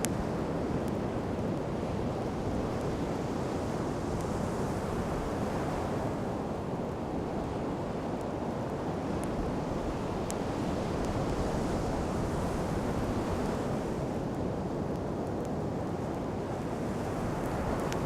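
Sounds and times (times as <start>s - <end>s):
campfire crackling: 0.0s - 5.4s, 6.6s - 18.0s
sea waves washing on shore: 7.3s - 18.0s.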